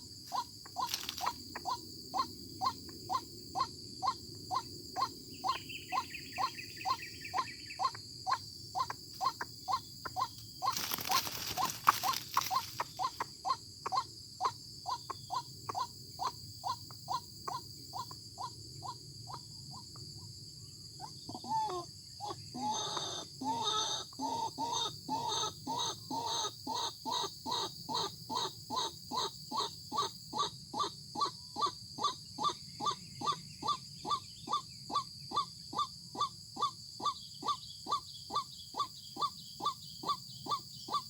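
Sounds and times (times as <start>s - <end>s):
rustle: 0.0s - 1.6s, 10.3s - 13.3s
high insect hum: 0.0s - 41.0s.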